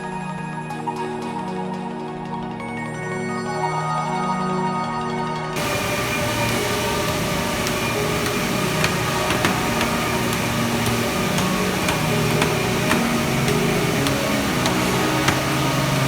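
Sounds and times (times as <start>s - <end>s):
crosscut saw running: 5.6s - 16.0s
sharp machine clicks and knocks: 5.6s - 16.0s.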